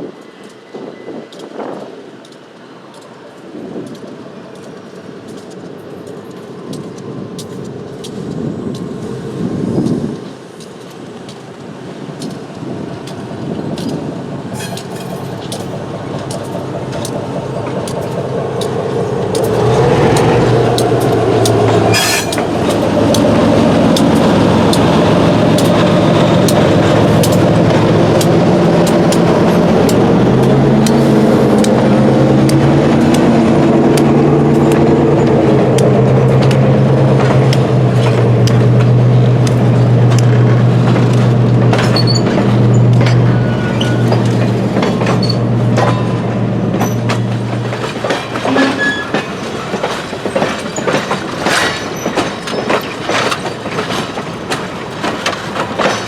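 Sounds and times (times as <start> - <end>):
diesel locomotive running: 0.0 - 56.0
sharp clicks: 14.6 - 43.3.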